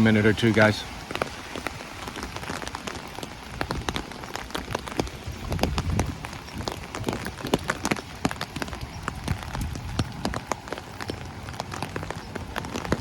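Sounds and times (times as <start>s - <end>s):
raindrops hitting an umbrella: 0.0s - 13.0s
rainfall hiss: 0.0s - 13.0s.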